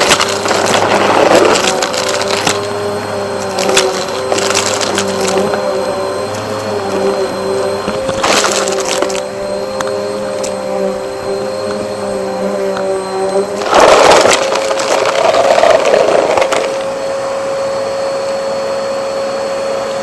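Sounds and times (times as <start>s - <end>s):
debris crackling through nozzle: 0.0s - 10.6s, 12.7s - 16.9s
vacuum cleaner motor hum: 0.0s - 20.0s.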